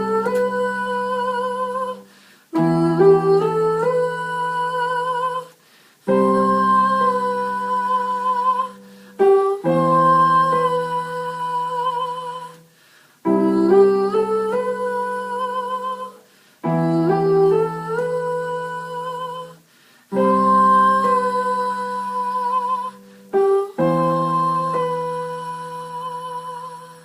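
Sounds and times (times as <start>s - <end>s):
keyboard chords: 20.2s - 26.8s.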